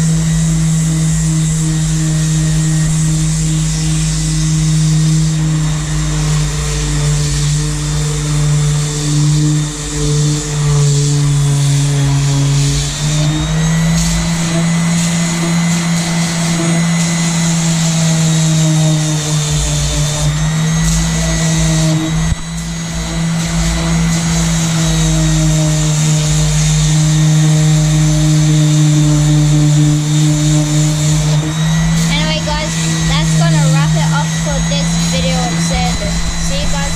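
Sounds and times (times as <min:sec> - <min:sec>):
electric power sander running: 0:00.0 - 0:36.9.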